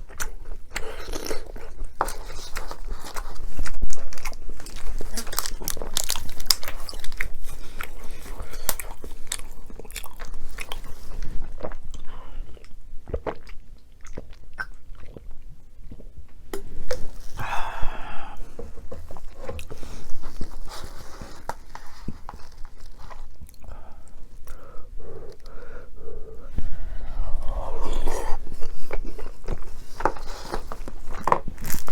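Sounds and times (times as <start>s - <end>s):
crunchy chewing of food: 0.0s - 31.9s.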